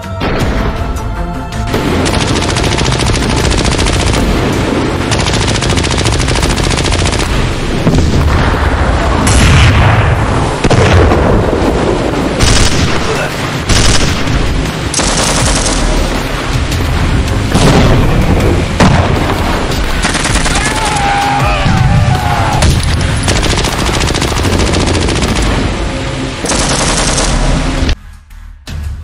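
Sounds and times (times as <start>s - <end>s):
background music: 0.0s - 29.0s
rapid automatic gunfire: 2.0s - 7.6s, 12.4s - 14.3s, 14.9s - 16.2s, 20.0s - 20.8s, 23.2s - 25.6s, 26.4s - 27.7s.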